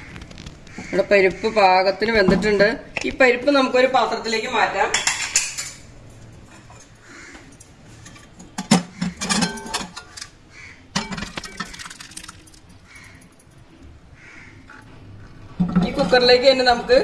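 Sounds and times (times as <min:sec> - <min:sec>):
pressure cooker clinking on metal: 0:08.6 - 0:10.1.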